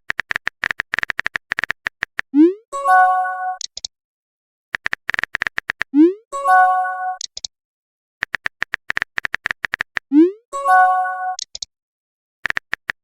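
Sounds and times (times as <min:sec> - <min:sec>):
quick typing clicks: 0:00.1 - 0:02.3, 0:04.8 - 0:05.9, 0:08.2 - 0:10.0, 0:12.4 - 0:13.0.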